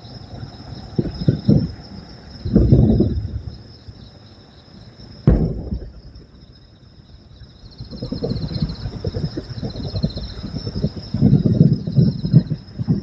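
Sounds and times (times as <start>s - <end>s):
crickets chirping: 0.0s - 13.0s
crackling firework pops: 5.3s - 6.4s
firework boom: 5.3s - 6.5s.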